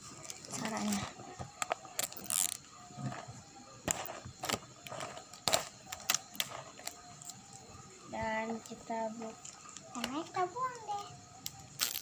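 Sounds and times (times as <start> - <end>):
plastic packaging tearing and crinkling: 2.0 - 2.6, 11.8 - 12.0.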